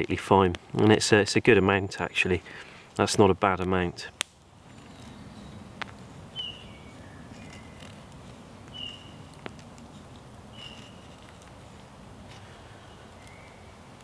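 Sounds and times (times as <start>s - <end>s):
low background hiss: 0.0s - 14.0s
woodland bird calling: 6.3s - 7.9s, 8.7s - 9.3s, 10.5s - 11.2s, 12.7s - 13.8s.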